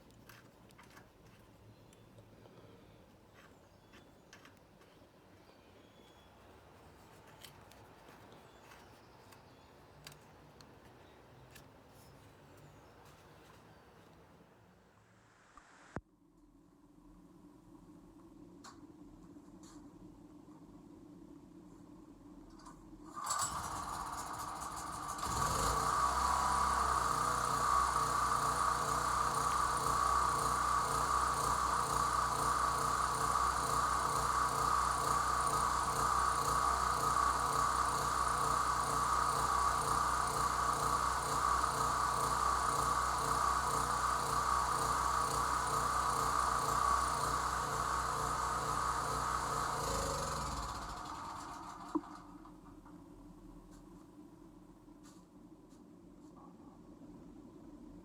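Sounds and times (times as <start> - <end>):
portable generator engine running: 23.2 - 52.4.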